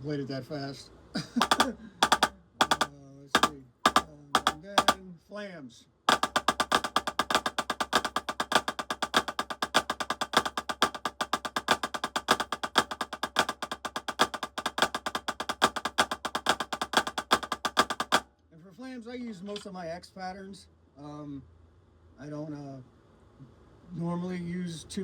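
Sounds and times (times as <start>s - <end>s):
drumsticks playing fast strokes: 1.4s - 5.0s, 6.1s - 18.2s.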